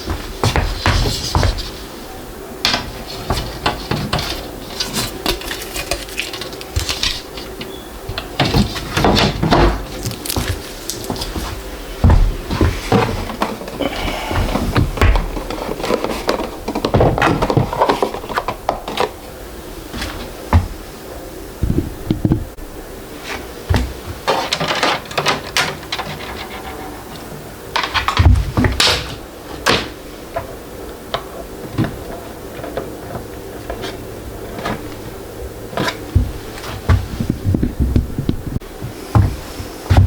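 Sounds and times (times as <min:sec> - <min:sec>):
packaging rustling: 0:04.3 - 0:07.6, 0:09.8 - 0:11.8
knocks and clunks of parts: 0:21.6 - 0:22.6.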